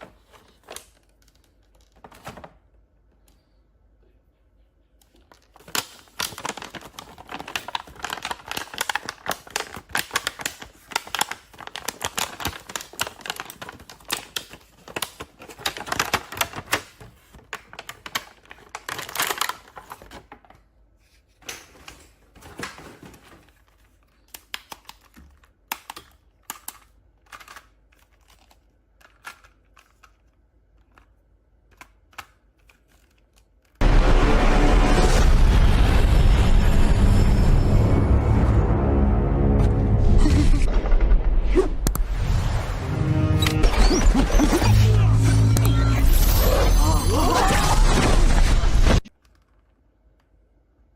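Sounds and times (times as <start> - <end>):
plastic packaging crackling: 5.3 - 20.5.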